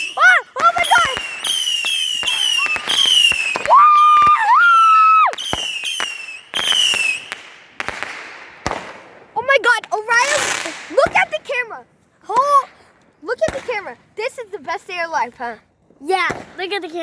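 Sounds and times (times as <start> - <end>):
fireworks whistling: 0.0 - 11.6
fireworks bangs and crackles: 0.0 - 15.4, 16.0 - 17.0.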